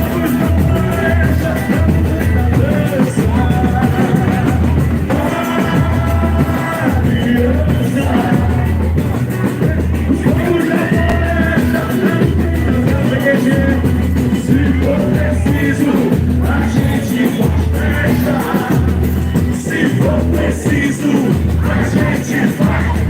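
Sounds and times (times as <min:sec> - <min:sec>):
bending melody line: 0:00.0 - 0:16.3
heavy steady drumming: 0:00.0 - 0:23.0.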